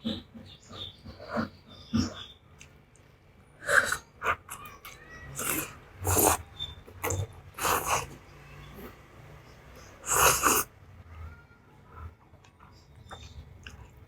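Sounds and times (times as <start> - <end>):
chewing: 3.6 - 8.2, 12.2 - 14.0
noodles being slurped: 3.6 - 8.2, 10.0 - 10.7.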